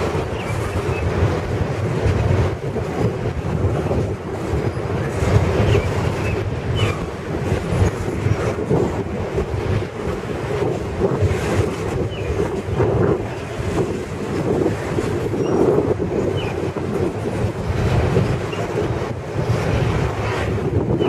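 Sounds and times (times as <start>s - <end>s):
train wheels rumbling on rail: 0.0s - 21.0s
high wheel squeaks: 15.2s - 16.7s.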